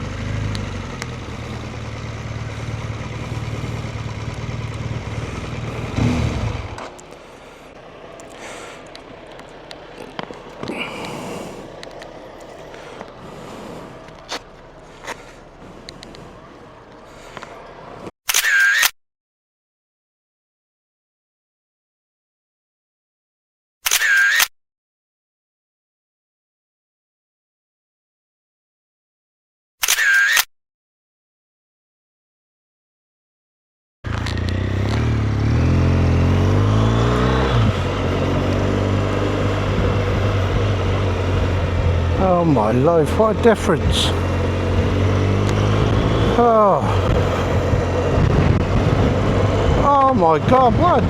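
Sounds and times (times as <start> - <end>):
motorcycle engine: 0.0 - 18.1, 34.1 - 51.0
sharp clicks: 0.4 - 17.7, 23.8 - 24.5, 29.8 - 30.5, 45.4 - 45.7
wind noise: 46.9 - 51.0.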